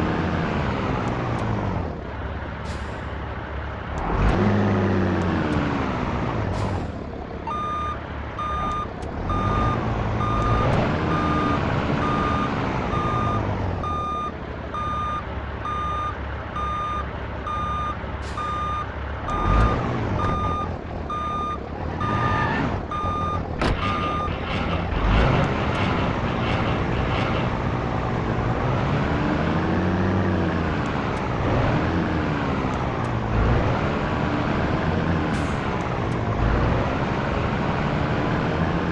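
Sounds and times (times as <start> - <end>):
diesel truck engine revving: 0.0 - 38.9
reversing alarm beeping: 7.5 - 23.4.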